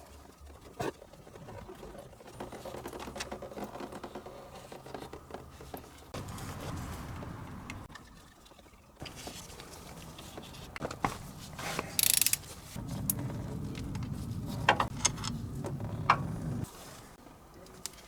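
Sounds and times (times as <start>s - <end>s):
low rubbing noise: 9.2s - 17.2s
ratcheting: 11.6s - 16.7s
metal tools clicking and clinking: 11.7s - 16.3s.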